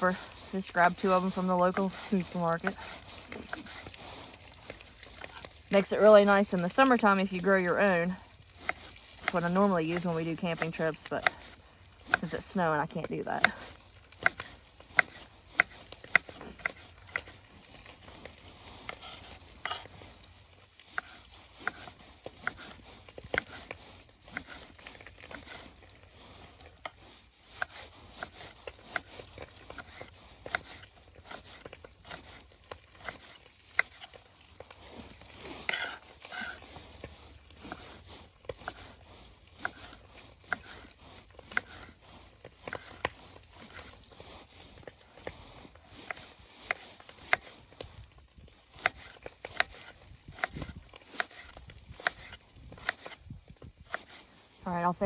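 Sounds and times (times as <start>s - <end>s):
meat sizzling in a pot: 0.6s - 27.8s.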